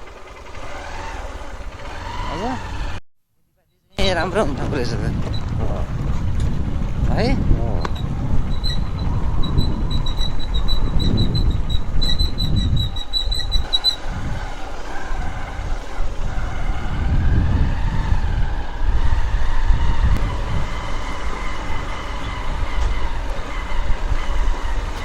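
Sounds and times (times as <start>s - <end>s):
low rumble: 4.0s - 15.7s
cicadas buzzing: 8.1s - 25.0s.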